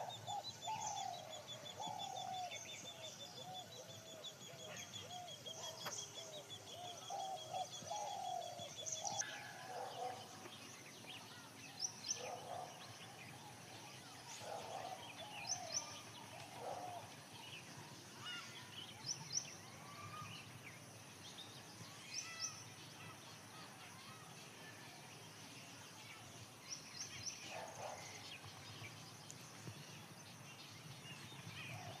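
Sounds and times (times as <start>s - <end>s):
birds trilling and chirping: 0.0s - 32.0s
faint background hiss: 0.0s - 32.0s.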